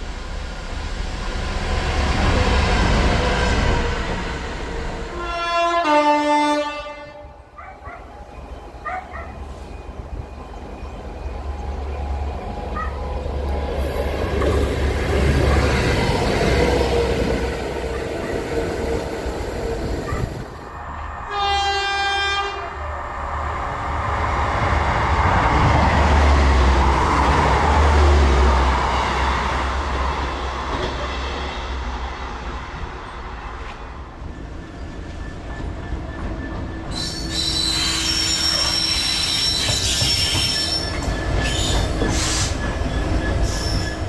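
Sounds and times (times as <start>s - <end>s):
train passing: 0.0s - 44.0s
train horn: 5.1s - 7.4s, 21.2s - 22.8s.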